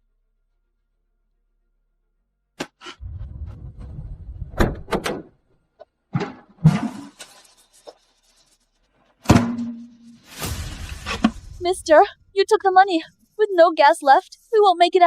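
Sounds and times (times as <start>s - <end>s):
low rumble: 3.0s - 5.0s
thuds: 3.3s - 5.3s, 9.2s - 11.6s
hiss: 10.2s - 11.6s.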